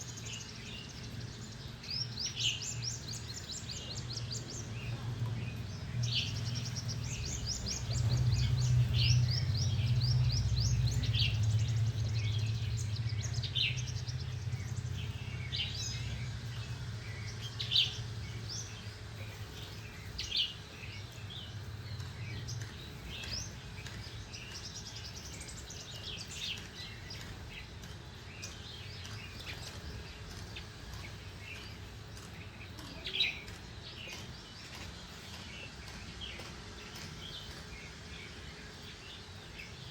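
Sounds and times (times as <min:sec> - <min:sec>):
small birds chirping: 0:00.0 - 0:39.9
low rumble: 0:05.0 - 0:18.7.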